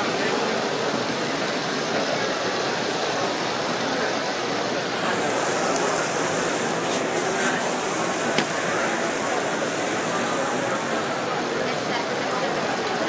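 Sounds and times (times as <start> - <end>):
vegetables sizzling in a skillet: 5.0 - 12.2.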